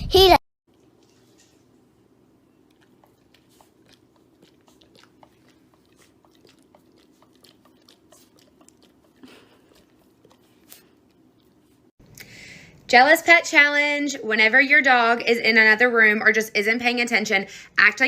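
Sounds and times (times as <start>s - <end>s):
faint chewing crunches: 0.7s - 12.2s.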